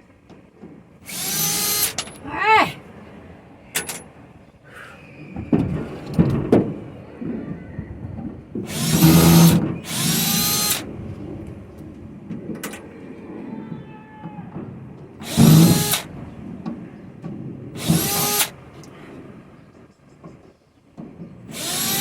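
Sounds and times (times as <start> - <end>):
cordless drill backing out screws: 1.0 - 2.2, 8.7 - 10.9, 15.2 - 16.1, 17.8 - 18.6, 21.5 - 22.0.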